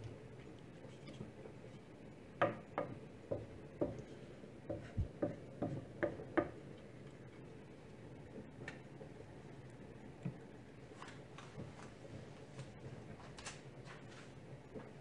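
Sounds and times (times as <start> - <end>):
light clicks and taps: 8.3 - 9.2.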